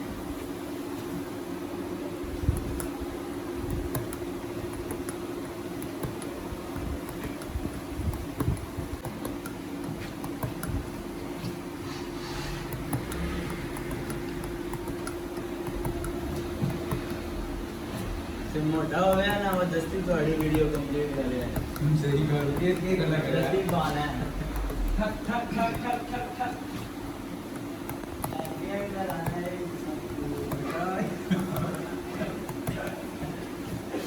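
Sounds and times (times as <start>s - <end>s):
steady low hum: 0.0s - 34.0s
clicks: 12.6s - 25.0s.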